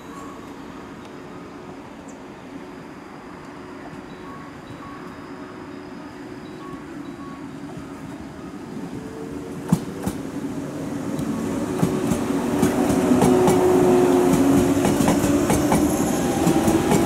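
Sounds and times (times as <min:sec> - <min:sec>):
electric train approaching: 0:00.0 - 0:17.0
wheels clacking over rail joints: 0:11.8 - 0:17.0.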